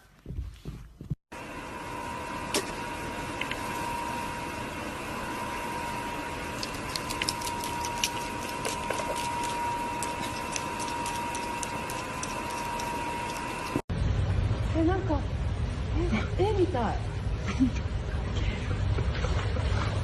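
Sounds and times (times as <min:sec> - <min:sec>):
machine hum: 0:01.0 - 0:16.2
thin steady whine: 0:01.3 - 0:20.0.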